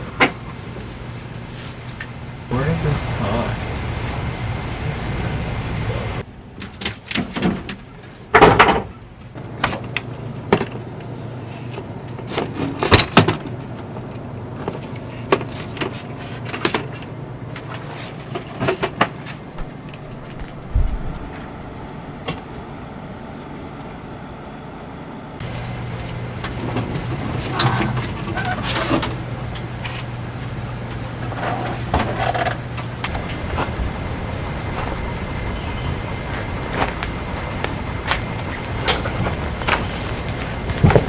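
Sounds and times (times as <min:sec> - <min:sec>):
steady low hum: 0:00.0 - 0:41.0
objects clattering being handled: 0:06.6 - 0:09.0, 0:38.1 - 0:41.0.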